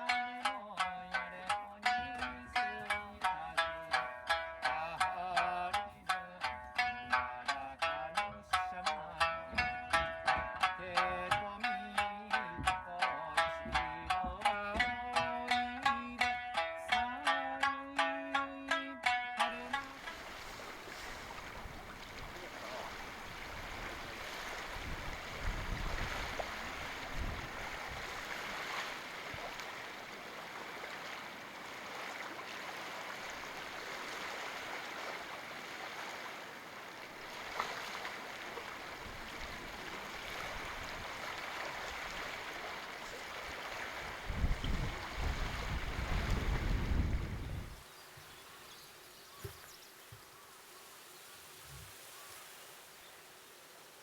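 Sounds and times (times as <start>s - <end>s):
sea waves washing on shore: 19.6s - 48.0s
wind gusting on microphone: 20.2s - 29.5s, 43.5s - 47.8s.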